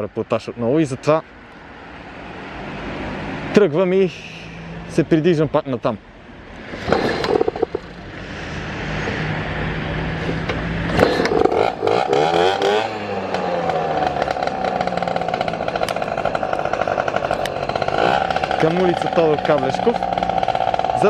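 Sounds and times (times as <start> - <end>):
vehicle engine revving: 6.6 - 21.0.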